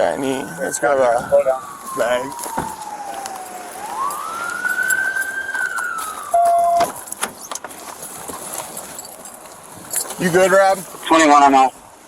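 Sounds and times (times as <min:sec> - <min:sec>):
emergency siren wailing: 0:00.0 - 0:07.2
loud steady beep: 0:06.3 - 0:06.9.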